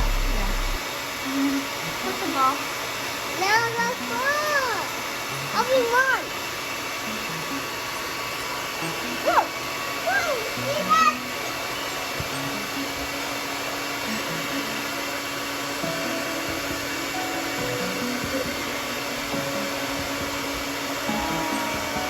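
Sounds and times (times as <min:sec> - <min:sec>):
hair dryer running: 0:00.0 - 0:22.0.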